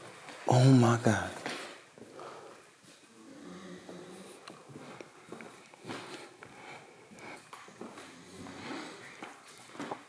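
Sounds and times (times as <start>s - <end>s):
person breathing: 2.0s - 9.4s.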